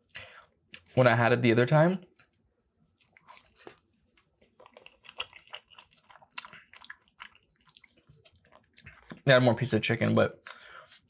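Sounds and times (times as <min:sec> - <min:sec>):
person chewing food: 0:02.2 - 0:09.3.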